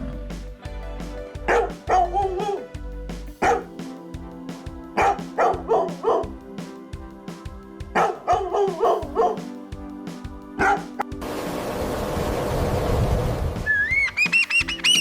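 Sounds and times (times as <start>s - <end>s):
background music with held notes: 0.0s - 15.0s
dog barking: 3.4s - 3.7s, 8.0s - 9.4s.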